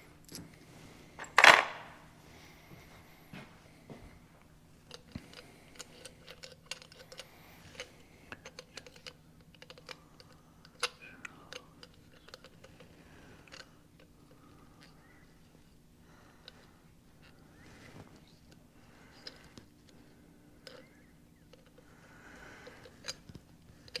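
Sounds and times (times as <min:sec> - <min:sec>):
faint steady hum: 0:00.0 - 0:24.0
metal parts and tools clicking: 0:01.2 - 0:01.9.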